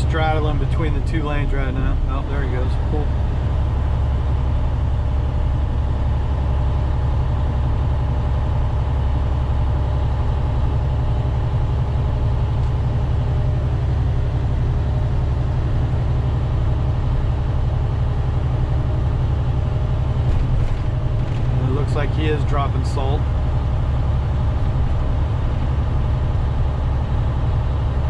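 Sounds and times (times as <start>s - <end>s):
road noise: 0.0s - 6.2s, 12.2s - 28.0s
diesel engine drone: 0.0s - 28.0s.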